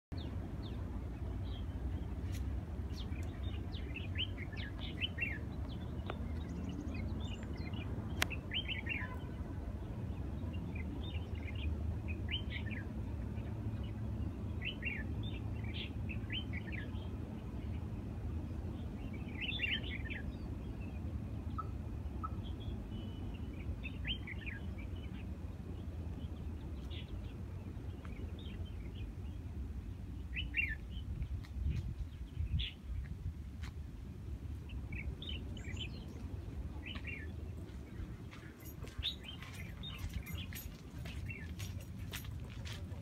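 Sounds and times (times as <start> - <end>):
small birds chirping: 34.6 - 43.0.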